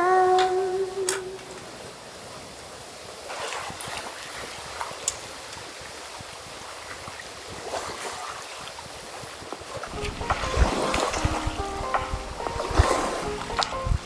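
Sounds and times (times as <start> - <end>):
lake waves lapping at shore: 1.4 - 14.0.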